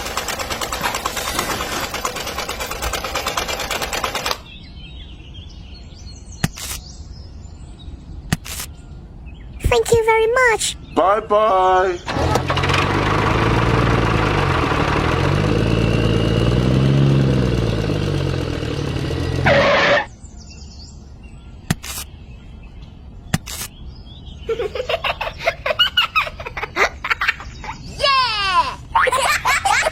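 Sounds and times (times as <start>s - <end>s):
small engine revving: 0.0s - 4.5s, 12.1s - 20.1s
sharp clicks: 2.4s - 4.5s, 6.4s - 6.8s, 21.7s - 22.1s, 23.3s - 23.7s
giggling laughter: 24.4s - 28.0s, 28.7s - 29.9s.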